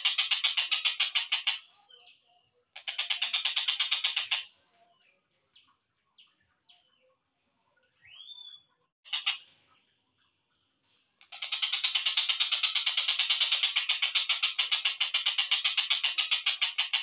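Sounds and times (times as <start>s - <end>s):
kingfisher rattling call: 0.0s - 1.7s, 2.8s - 4.5s, 9.0s - 9.4s, 11.2s - 17.0s
bird chirps: 0.1s - 7.2s, 7.8s - 9.4s.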